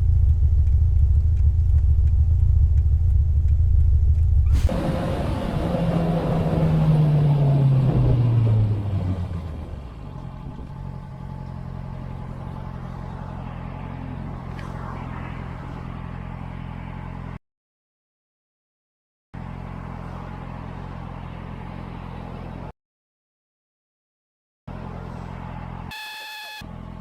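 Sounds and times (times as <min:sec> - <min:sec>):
vehicle engine droning: 0:00.0 - 0:17.4, 0:19.4 - 0:22.7, 0:24.7 - 0:27.0.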